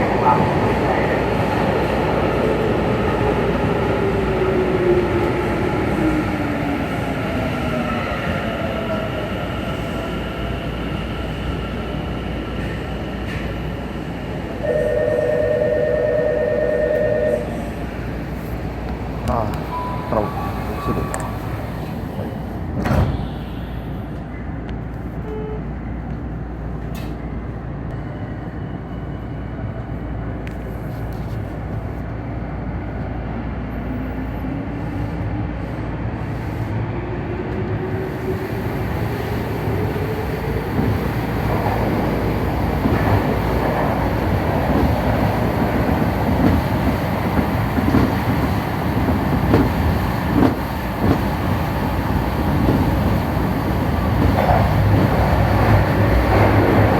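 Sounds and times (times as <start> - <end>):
train wheels clattering on rails: 40.7 - 56.9.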